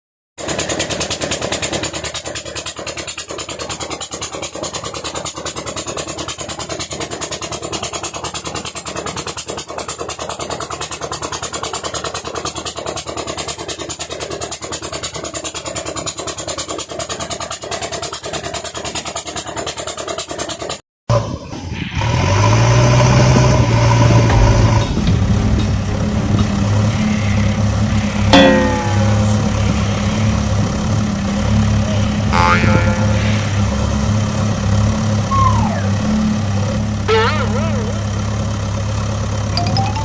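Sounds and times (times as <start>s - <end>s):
diesel engine idling with chugging: 0.4s - 40.0s.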